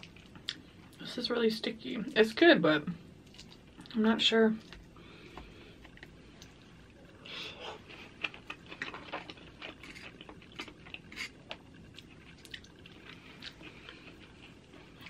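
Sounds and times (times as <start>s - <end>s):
person chewing: 4.6s - 15.0s.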